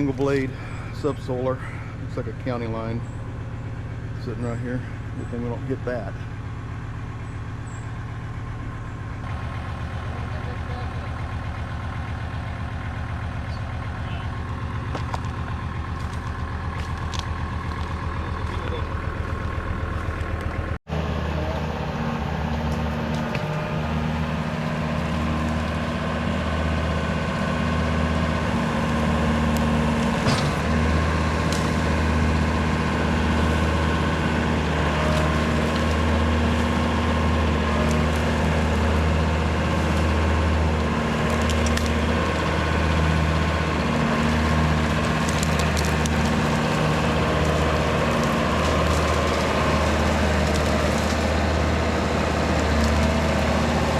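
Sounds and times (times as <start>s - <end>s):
tractor diesel engine: 0.0s - 53.9s
rotary cutter shredding bamboo: 14.4s - 53.9s
stalks cracking and snapping: 14.5s - 18.6s, 29.5s - 32.5s, 35.1s - 36.6s, 41.2s - 42.6s, 44.2s - 53.9s.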